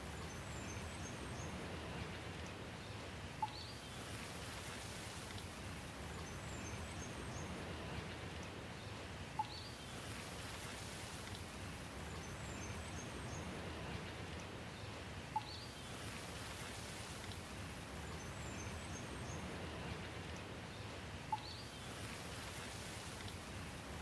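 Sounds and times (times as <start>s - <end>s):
steady rain: 0.0s - 24.0s
faint high bird chirps: 3.4s - 3.8s, 15.4s - 15.8s, 21.3s - 21.7s.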